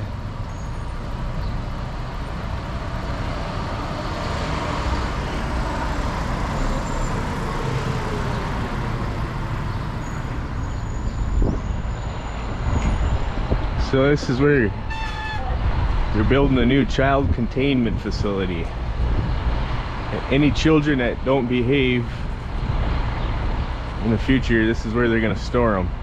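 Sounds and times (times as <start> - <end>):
bicycle road noise: 0.0 - 26.0
wind buffeting microphone: 2.5 - 21.3.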